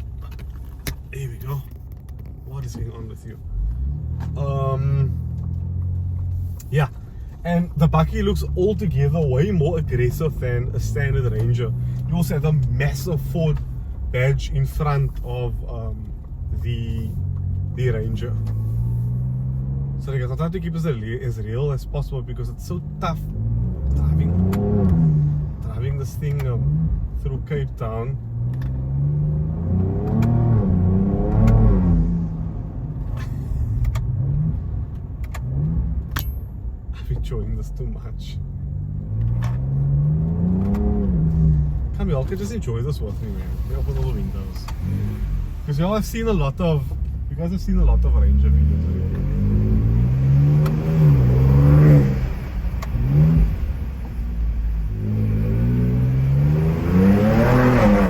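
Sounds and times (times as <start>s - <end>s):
engine accelerating hard: 22.7s - 27.0s, 28.6s - 36.1s, 38.7s - 58.0s.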